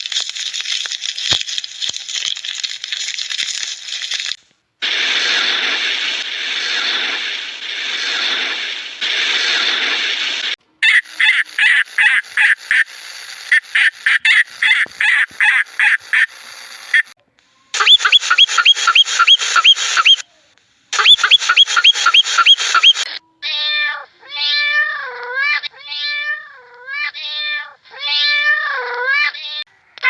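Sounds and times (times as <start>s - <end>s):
animal calls: 10.8s - 12.9s, 13.5s - 16.4s, 17.8s - 20.2s, 21.0s - 23.1s.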